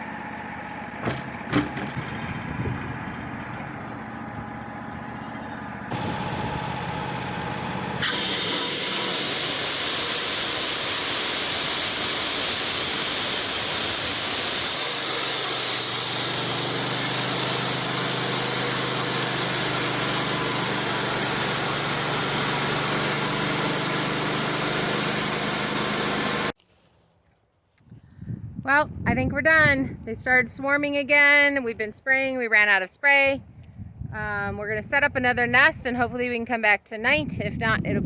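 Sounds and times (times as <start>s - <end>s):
sawmill engine: 0.0s - 26.6s
loud steady hiss: 8.0s - 26.6s.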